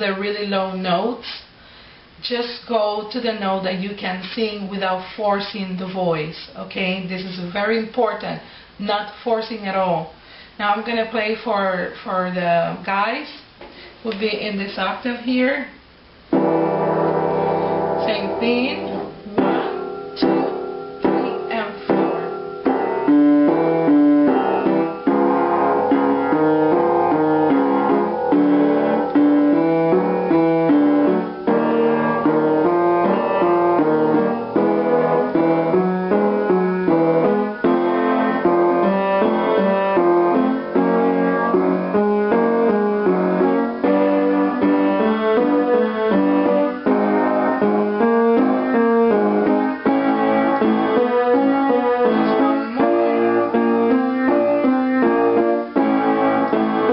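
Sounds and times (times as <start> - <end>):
piano playing short note patterns: 16.3 - 56.9.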